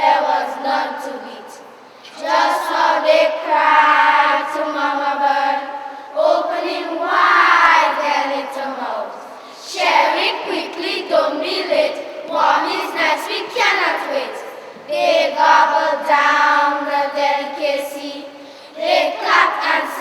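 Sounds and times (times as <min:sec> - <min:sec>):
children chanting in unison: 0:00.0 - 0:20.0.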